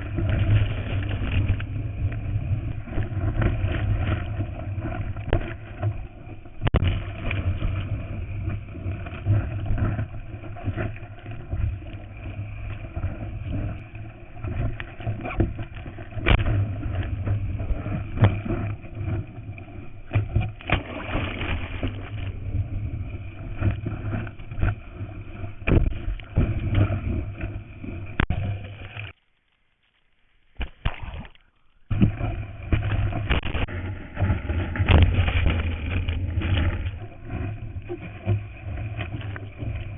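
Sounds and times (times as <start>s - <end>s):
sea water rushing and splashing: 0.0s - 29.2s, 30.6s - 39.9s
wind buffeting camera: 31.9s - 39.9s.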